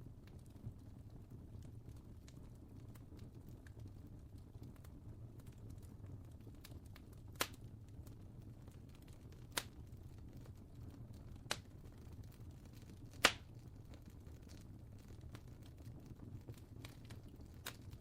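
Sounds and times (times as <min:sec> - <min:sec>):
wood fire crackling: 0:00.0 - 0:18.0
sharp loud pops of fire: 0:13.2 - 0:13.5.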